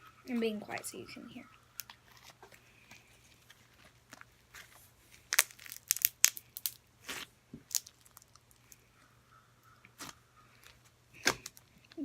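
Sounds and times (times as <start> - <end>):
slime squishing with crackling pops: 3.7 - 8.8, 9.7 - 12.0.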